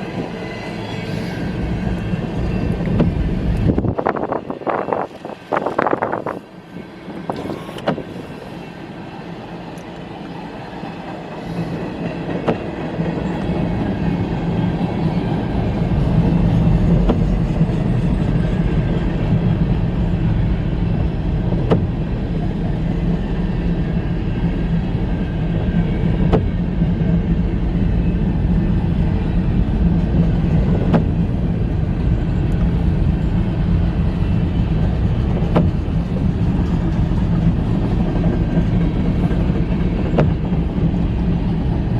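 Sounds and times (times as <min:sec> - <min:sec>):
freight train wheels rumbling on rails: 0:00.0 - 0:41.9
sharp clicks of train wheels: 0:09.6 - 0:20.0, 0:34.7 - 0:41.9.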